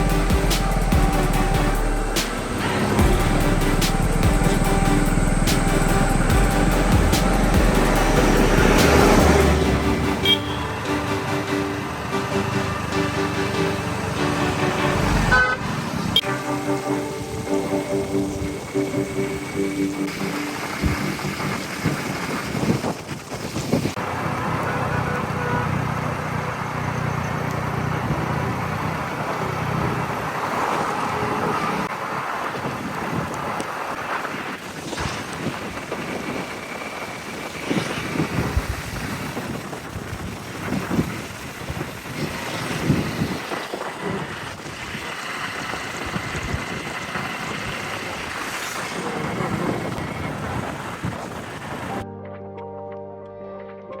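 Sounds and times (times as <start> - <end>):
vehicle engine running: 0.0 - 22.2
steady rushing noise: 0.0 - 24.2
rushing wind: 0.0 - 24.5, 27.8 - 52.0
wind buffeting microphone: 31.7 - 52.0.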